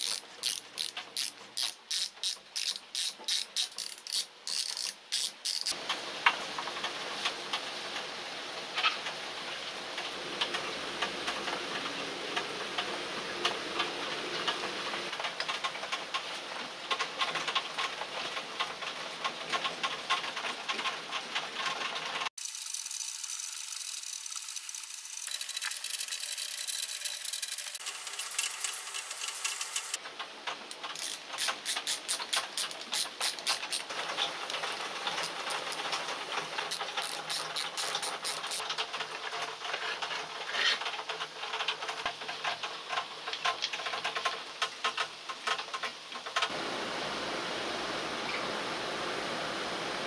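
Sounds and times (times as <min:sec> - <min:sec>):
screwdriver turning screws: 0:00.0 - 0:05.8, 0:30.7 - 0:33.9, 0:36.7 - 0:38.6
small metal clicks and rattles: 0:00.0 - 0:05.9, 0:15.1 - 0:46.5
steady hiss: 0:22.4 - 0:38.7, 0:41.9 - 0:50.0.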